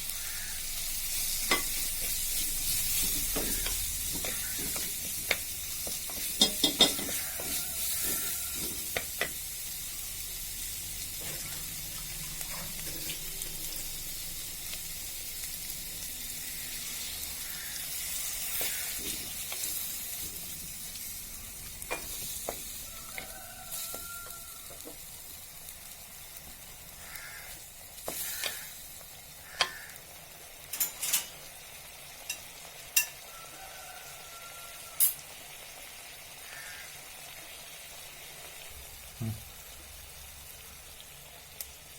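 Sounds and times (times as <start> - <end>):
food sizzling in a pan: 0.0 - 41.9
spoon scraping and clicking on pan: 1.4 - 9.4, 28.0 - 28.7, 29.5 - 29.9, 30.7 - 31.4, 32.3 - 33.3.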